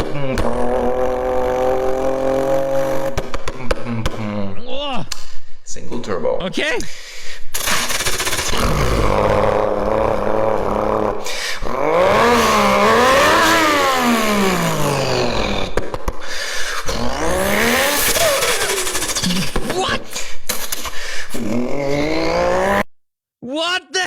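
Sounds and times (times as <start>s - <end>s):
car engine revving: 0.0s - 3.5s, 7.6s - 16.0s, 16.9s - 19.7s.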